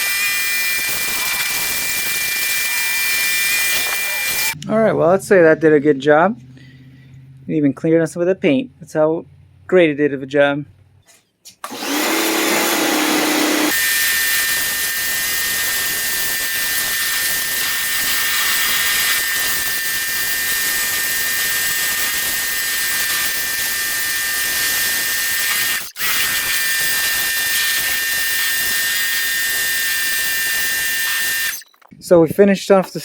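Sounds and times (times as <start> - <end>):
pressure washer motor whine: 11.7 - 31.6.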